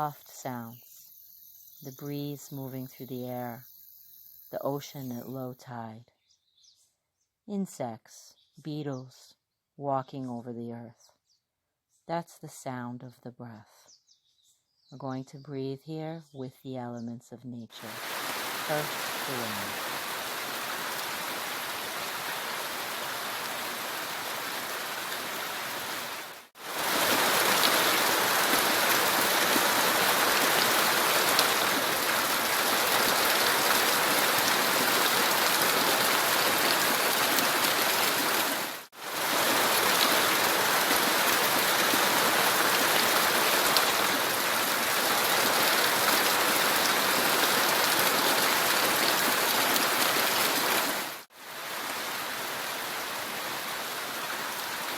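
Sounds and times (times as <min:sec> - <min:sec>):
rushing nature ambience: 0:00.0 - 0:05.4, 0:17.7 - 0:54.9.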